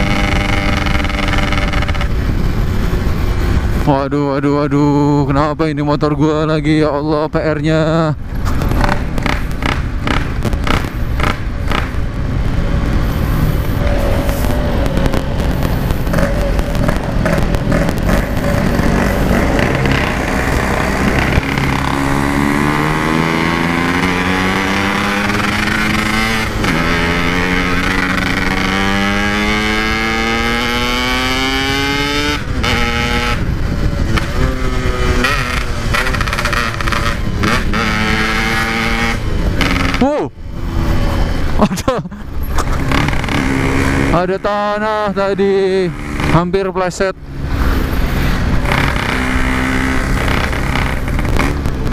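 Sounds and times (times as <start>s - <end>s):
motorcycle engine accelerating: 0.0s - 4.0s, 7.8s - 51.9s
rushing wind noise: 0.0s - 51.9s.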